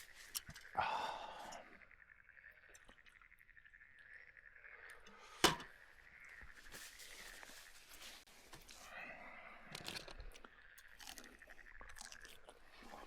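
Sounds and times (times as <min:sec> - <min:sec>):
frogs croaking: 0:00.0 - 0:13.0.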